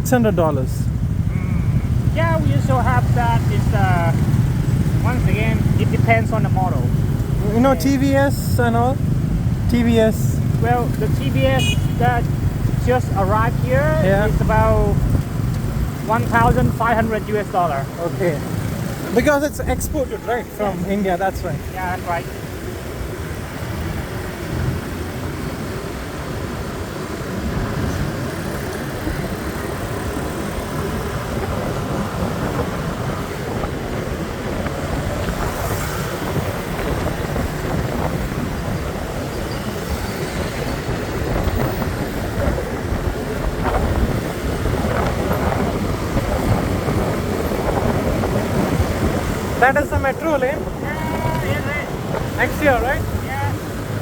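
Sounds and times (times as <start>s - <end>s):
traffic and road noise: 0.0s - 54.0s
wind on microphone: 27.2s - 54.0s.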